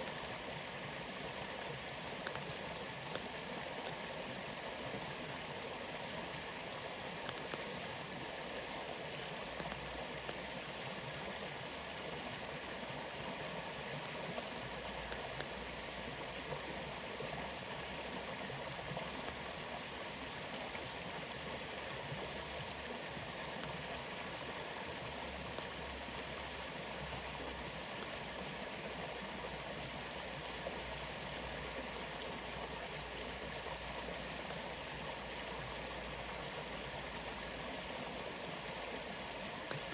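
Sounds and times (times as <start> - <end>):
faint ticks: 1.6 - 4.1, 7.1 - 7.9, 9.2 - 10.5, 14.3 - 17.5, 18.8 - 19.6, 25.3 - 25.8, 39.5 - 39.9.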